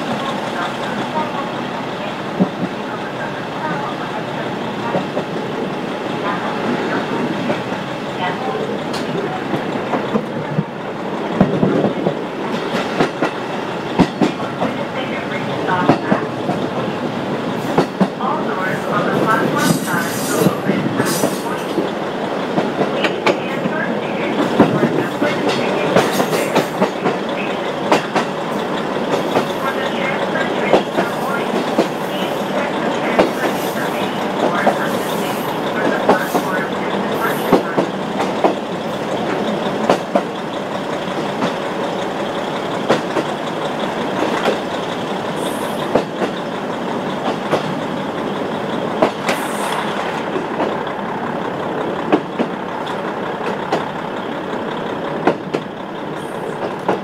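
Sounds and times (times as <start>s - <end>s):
wheels rumbling on rail: 0.0s - 57.0s
wheels clicking over rail joints: 19.1s - 57.0s.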